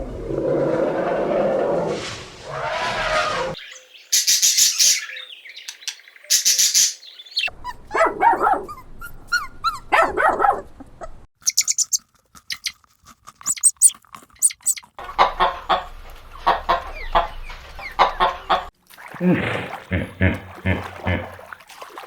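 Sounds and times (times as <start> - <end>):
rough noisy animal sound: 0.0 - 3.6
dog yapping: 7.6 - 10.8.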